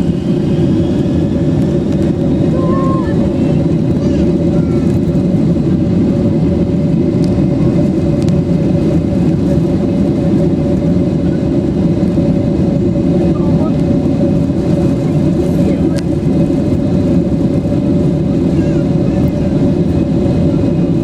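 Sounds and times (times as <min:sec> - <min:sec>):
jet engines and airflow rushing: 0:00.0 - 0:21.0
steady cabin hum: 0:00.0 - 0:21.0.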